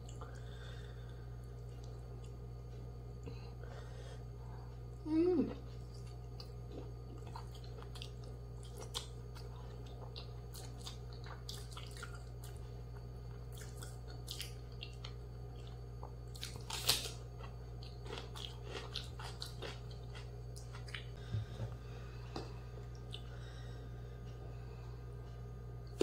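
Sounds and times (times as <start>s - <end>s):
chewing with wet mouth sounds: 4.9s - 21.2s, 22.3s - 23.5s
crisp crunches: 16.4s - 17.2s.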